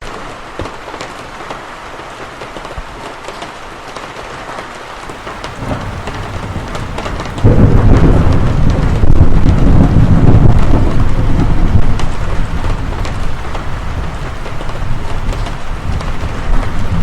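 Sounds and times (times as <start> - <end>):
steady rain: 0.0 - 17.0
sharp drop impacts: 5.1 - 14.5
low thunder rumble: 5.1 - 17.0.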